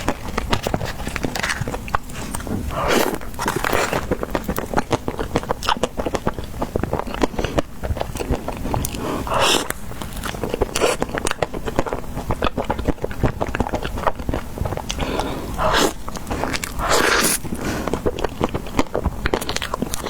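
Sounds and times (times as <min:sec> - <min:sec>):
chewing with crisp crackles: 0:00.0 - 0:20.0
wet noisy eating bursts: 0:00.0 - 0:20.0.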